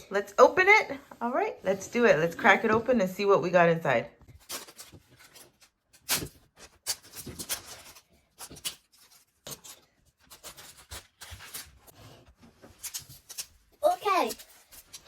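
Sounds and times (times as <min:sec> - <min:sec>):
plastic packaging scraping and rubbing: 0:04.4 - 0:15.0.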